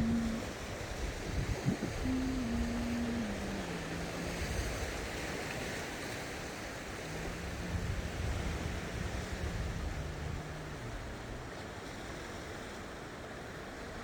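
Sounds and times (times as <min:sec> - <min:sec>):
faint low droning tone: 0:00.0 - 0:00.7, 0:01.3 - 0:05.8, 0:06.4 - 0:11.6
sea waves washing onto shore: 0:00.0 - 0:14.0.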